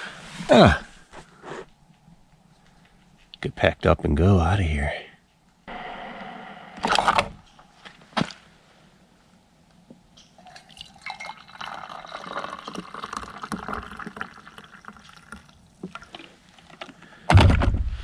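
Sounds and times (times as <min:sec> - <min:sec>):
liquid pouring into container: 0:10.4 - 0:16.2
knocks: 0:17.3 - 0:18.0.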